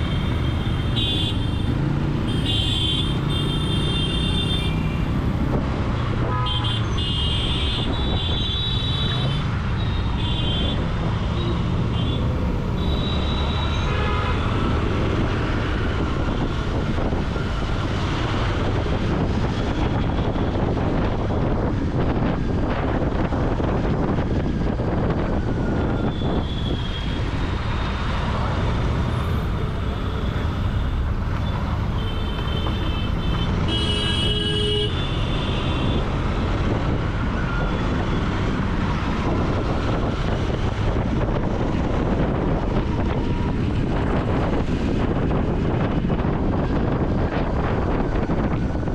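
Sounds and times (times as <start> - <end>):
vehicle horn toot: 32.0 - 36.0.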